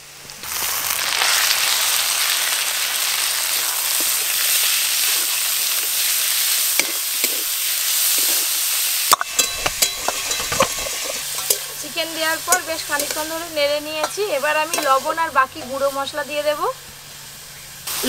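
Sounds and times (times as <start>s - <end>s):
meat sizzling in hot oil: 0.0s - 18.0s
spatula stirring in a pan: 3.9s - 15.9s.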